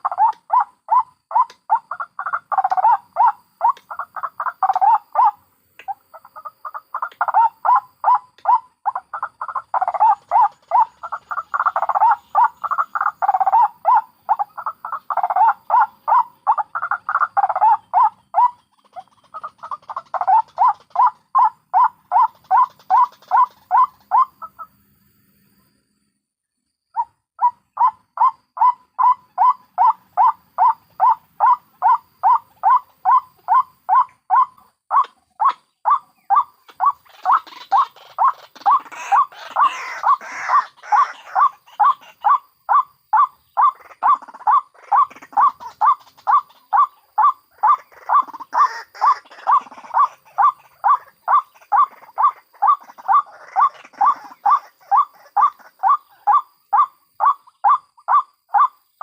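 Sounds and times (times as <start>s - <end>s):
waterhens croaking calls: 0.0s - 24.8s, 26.9s - 59.0s.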